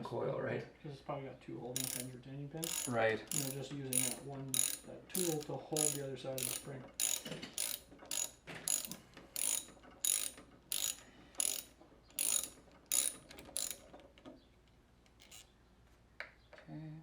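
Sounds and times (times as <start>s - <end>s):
ratchet wrench clicking: 1.8s - 13.9s, 15.1s - 15.5s.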